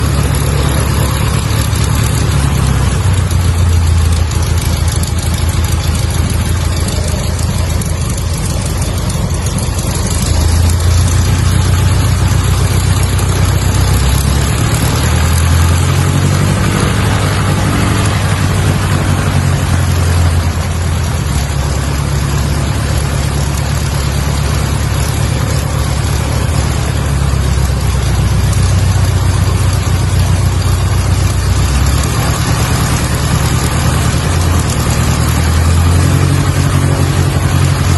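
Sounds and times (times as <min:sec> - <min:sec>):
small plane engine and propeller droning: 0:00.0 - 0:37.9.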